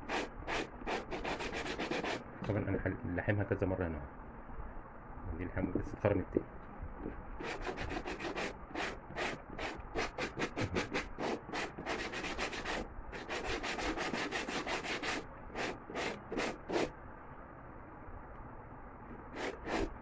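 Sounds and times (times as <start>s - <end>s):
sandpaper rubbing on rubber: 0.0s - 2.2s, 7.4s - 16.9s, 19.2s - 20.0s.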